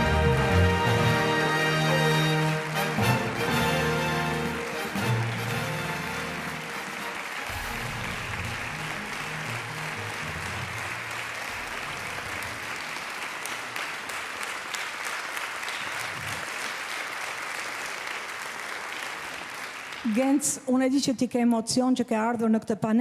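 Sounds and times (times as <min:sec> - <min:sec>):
music playing: 0:00.0 - 0:11.5
audience applauding: 0:00.0 - 0:20.5.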